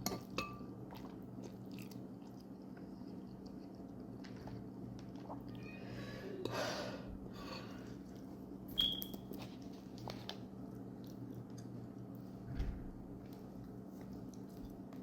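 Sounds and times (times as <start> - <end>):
person chewing noodles: 0.8 - 5.6.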